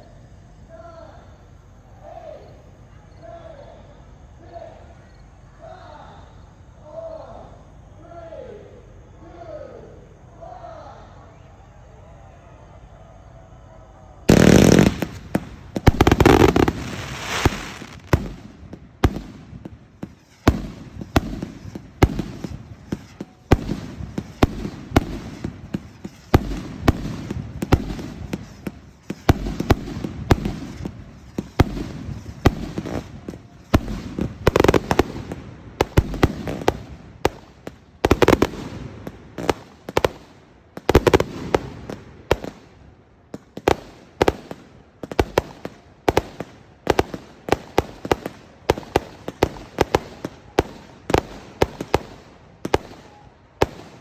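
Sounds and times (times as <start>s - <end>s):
fireworks bangs: 14.2s - 54.0s.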